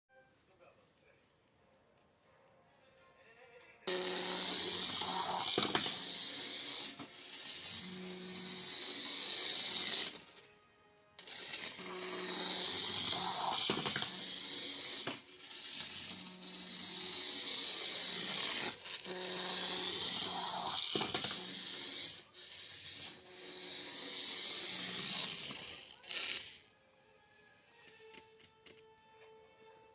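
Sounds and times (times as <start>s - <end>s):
toy car motor whirring: 3.9s - 10.5s, 11.2s - 26.8s.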